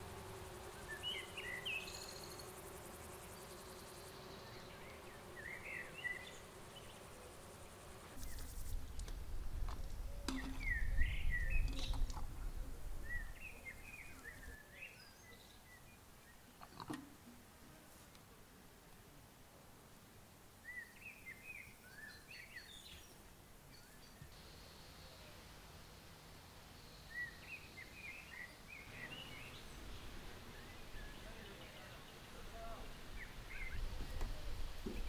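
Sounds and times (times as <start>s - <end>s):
small birds chirping: 0.0s - 9.2s, 9.9s - 16.5s, 20.7s - 35.0s
faint insect-like hum: 0.0s - 35.0s
wind rumble on microphone: 8.2s - 13.8s.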